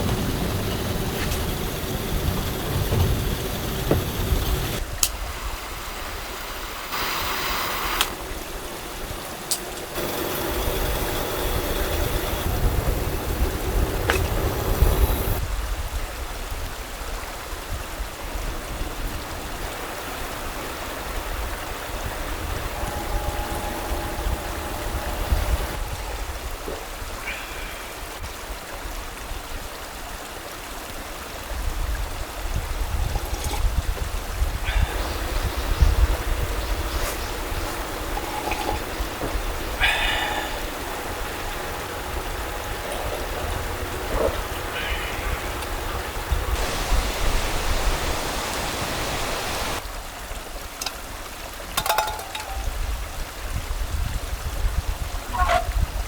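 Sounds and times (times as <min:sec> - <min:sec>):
stream flowing: 0:00.0 - 0:56.0
short clink: 0:51.8 - 0:52.7.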